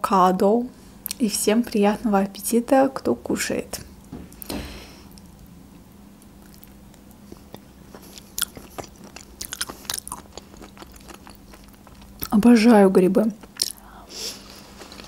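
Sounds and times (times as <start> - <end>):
wet chewing with mouth clicks: 6.4 - 12.4, 13.4 - 13.9.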